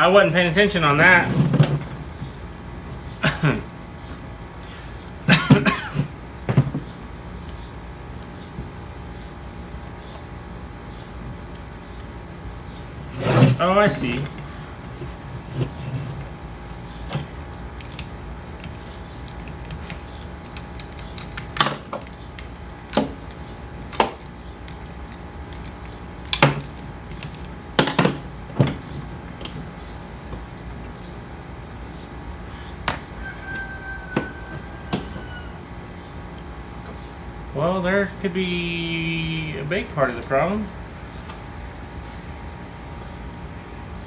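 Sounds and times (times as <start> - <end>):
steady low hum: 0.0 - 44.0
small metal parts clicking: 17.7 - 27.6.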